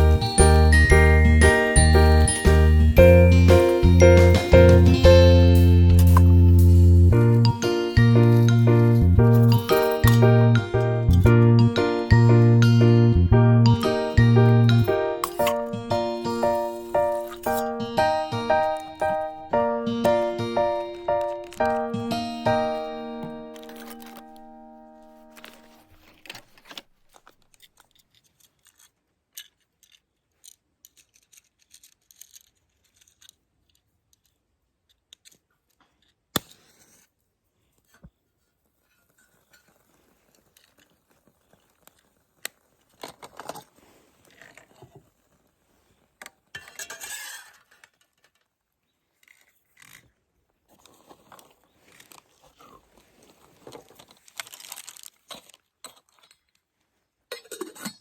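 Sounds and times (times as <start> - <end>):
gear rustling and scraping: 25.2 - 36.1, 37.7 - 55.7.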